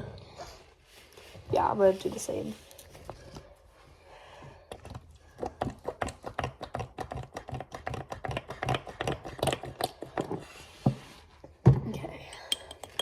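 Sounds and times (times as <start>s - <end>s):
utensil stirring thick slime: 4.5s - 11.6s.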